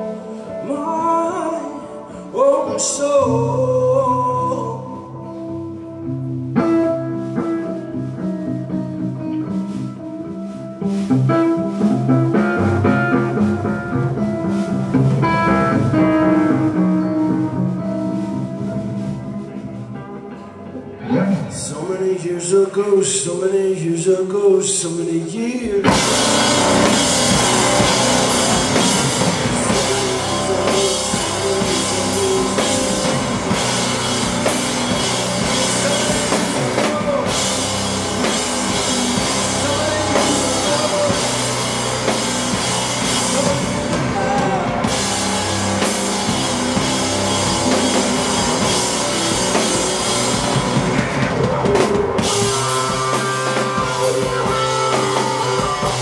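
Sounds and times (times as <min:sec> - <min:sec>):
rock band playing: 0:00.0 - 0:23.4, 0:25.6 - 0:56.0.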